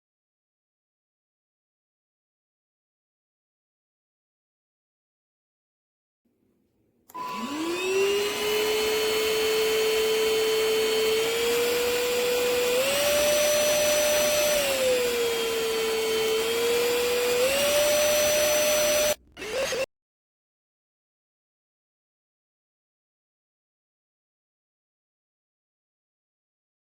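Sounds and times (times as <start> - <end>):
vacuum cleaner motor whine: 7.1 - 19.9.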